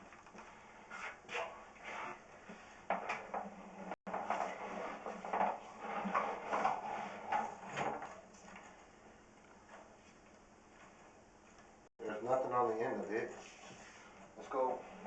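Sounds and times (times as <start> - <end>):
cable knocking and scraping in pipe: 0.0 - 8.7.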